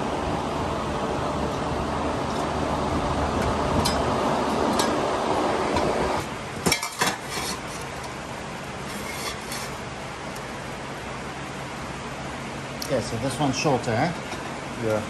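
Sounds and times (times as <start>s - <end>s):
steady machine noise: 0.0s - 12.7s
metal pipes clinking: 5.7s - 8.1s.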